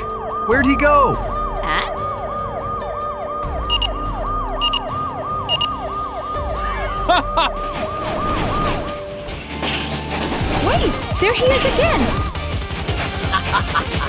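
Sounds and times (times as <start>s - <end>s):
cartoon police siren wailing: 0.0s - 9.0s
short high beeps: 3.7s - 3.9s, 4.6s - 4.8s, 5.5s - 5.7s.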